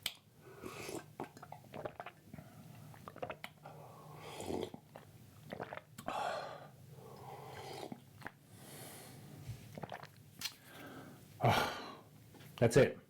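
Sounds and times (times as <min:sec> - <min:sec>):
person chewing food: 0:00.0 - 0:03.7, 0:04.4 - 0:06.2, 0:07.1 - 0:08.4, 0:09.7 - 0:11.0.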